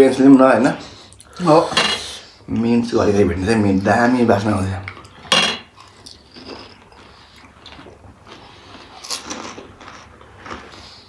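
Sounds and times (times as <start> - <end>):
chewing crunchy food: 4.9 - 11.0.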